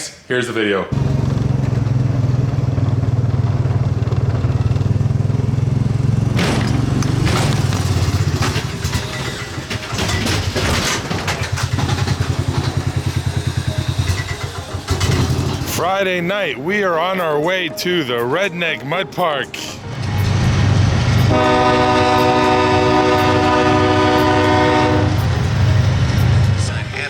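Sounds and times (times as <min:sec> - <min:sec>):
vehicle engine droning: 0:00.9 - 0:16.7, 0:19.8 - 0:27.0
knocking and rattling: 0:06.3 - 0:15.7.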